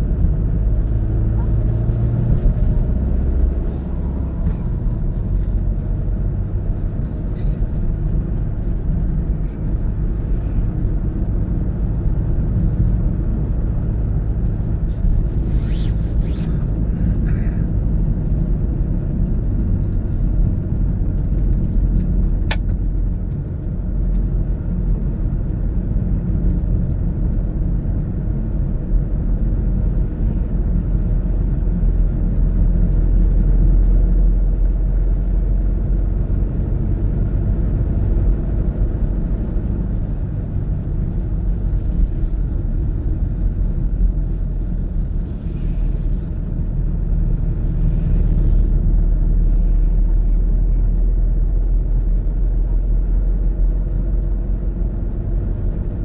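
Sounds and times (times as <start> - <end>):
car engine and road noise: 0.0 - 56.0
sharp click: 22.5 - 22.8.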